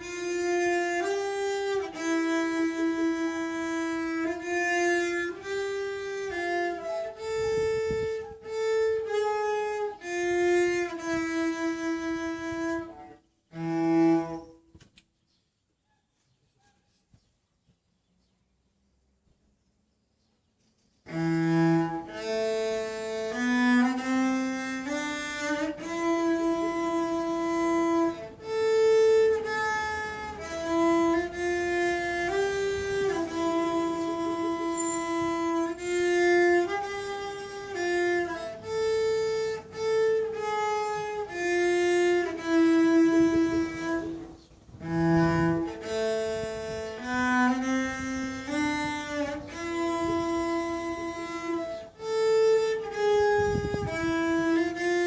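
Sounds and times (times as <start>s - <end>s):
solo violin slow melody: 0.0s - 14.7s, 21.0s - 55.0s.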